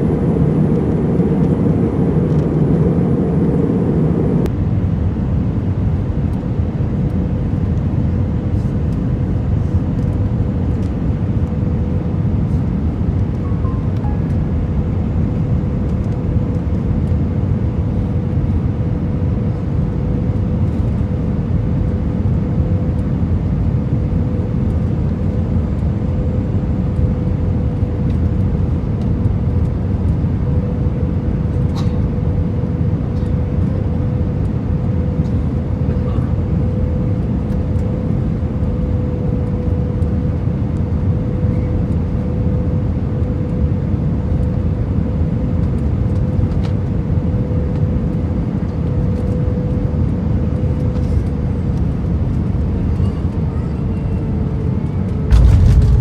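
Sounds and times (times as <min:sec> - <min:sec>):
steady cabin hum: 0:00.0 - 0:04.6, 0:54.8 - 0:56.0
deep rumble of engines and airflow: 0:00.0 - 0:56.0.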